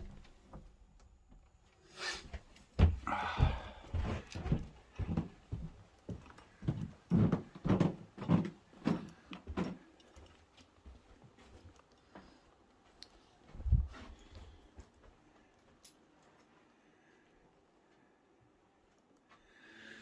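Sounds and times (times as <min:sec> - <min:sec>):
footsteps: 0:02.2 - 0:15.2.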